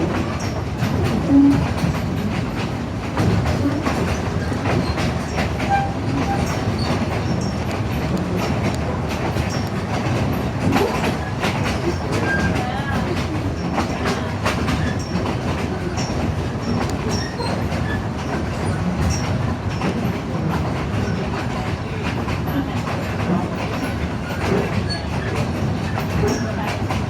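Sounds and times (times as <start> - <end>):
train cars rumbling: 0.0 - 27.0
wheels clicking over rail joints: 0.0 - 27.0
train wheel squeals: 0.2 - 2.2, 3.4 - 8.6, 9.4 - 10.0, 10.7 - 14.0, 14.6 - 20.1, 23.5 - 26.9.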